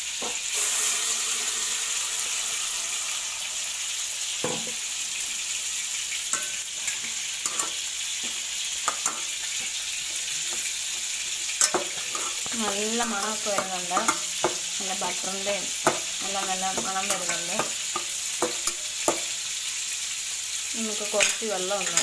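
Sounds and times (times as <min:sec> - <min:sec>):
paste sizzling in butter: 0:00.0 - 0:22.0
metal spoon clinking against pot: 0:06.4 - 0:07.8, 0:11.6 - 0:14.6.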